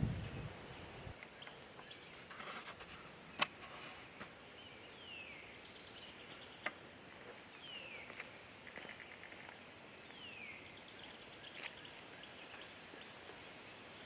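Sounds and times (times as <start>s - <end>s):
outdoor hiss: 0.0s - 14.0s
birds whistling: 7.5s - 8.3s.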